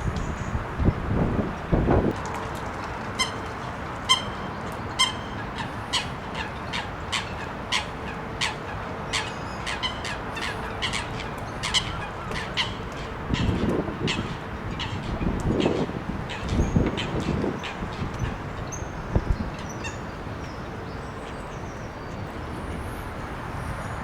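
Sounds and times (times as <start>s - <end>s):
wind noise: 0.0s - 3.3s, 11.6s - 19.8s, 22.0s - 24.0s.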